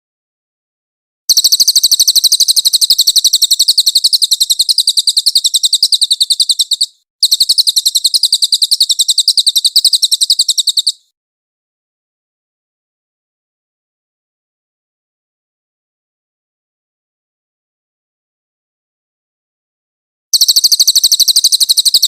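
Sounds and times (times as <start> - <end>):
bird high-pitched trill: 1.3 - 11.1, 20.4 - 22.0.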